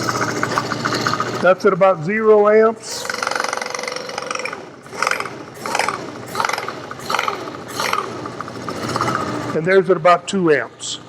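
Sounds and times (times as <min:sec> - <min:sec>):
rasping scrapes: 0:00.0 - 0:01.4, 0:02.8 - 0:09.6
electric motor humming: 0:00.0 - 0:09.6.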